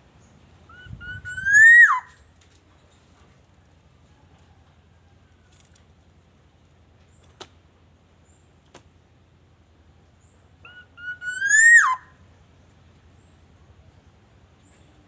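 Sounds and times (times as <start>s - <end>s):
bird fluty whistle: 0.7s - 2.2s, 10.7s - 12.1s.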